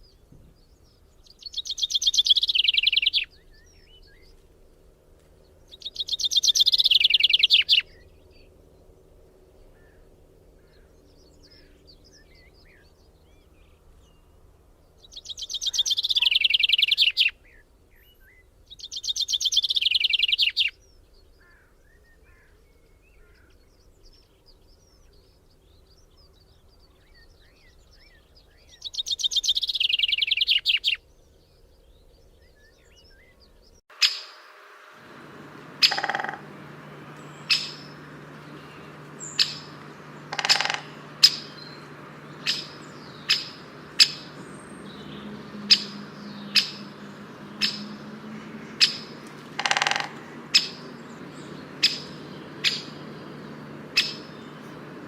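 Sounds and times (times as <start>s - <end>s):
bird singing trills: 0.0s - 4.4s, 5.7s - 8.9s, 14.9s - 55.0s
steady low hum: 34.2s - 55.0s.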